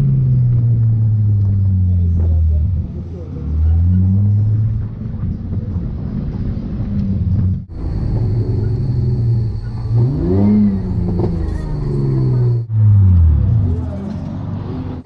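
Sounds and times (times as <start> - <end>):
car engine running at low revs: 0.0 - 14.8.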